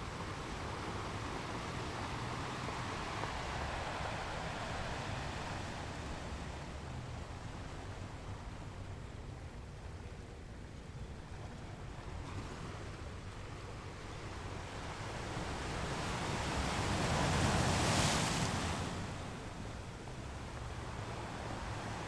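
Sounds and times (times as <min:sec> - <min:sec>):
ocean surf washing ashore: 0:00.0 - 0:08.6, 0:13.9 - 0:22.0.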